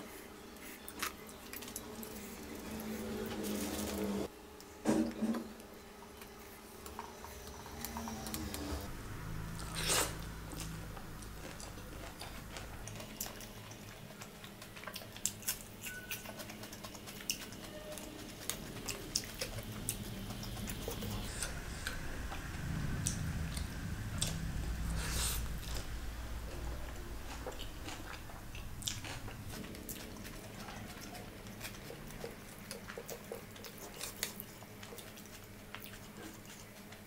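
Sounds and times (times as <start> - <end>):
person chewing food: 9.5 - 37.0.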